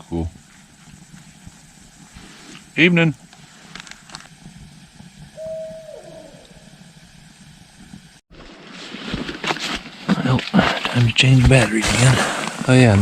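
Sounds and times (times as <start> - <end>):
owl hooting: 0.0 - 7.2.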